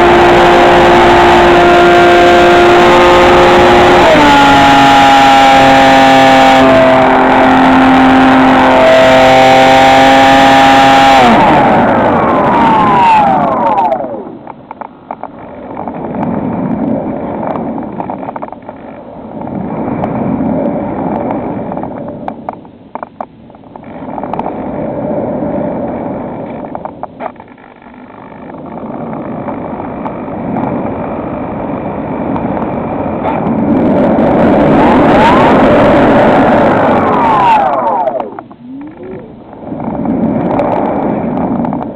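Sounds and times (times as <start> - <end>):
electric motor and propeller whine: 0.0 - 22.7, 23.6 - 41.9
wind rushing: 28.8 - 41.9.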